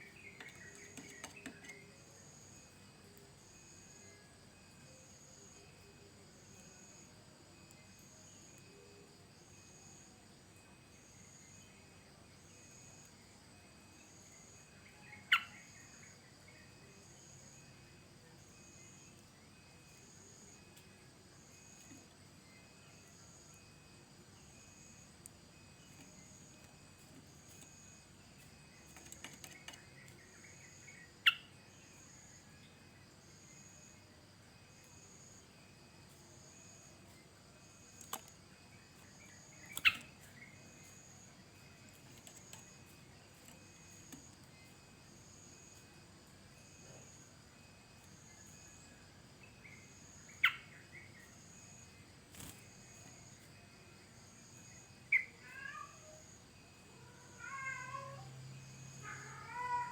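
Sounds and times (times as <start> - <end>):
pulsing insect trill: 0.0 - 59.9.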